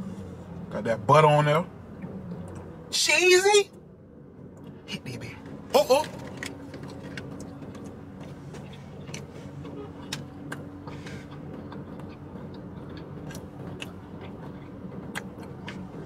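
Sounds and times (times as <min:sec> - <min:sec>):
man chewing food: 0:06.3 - 0:16.0.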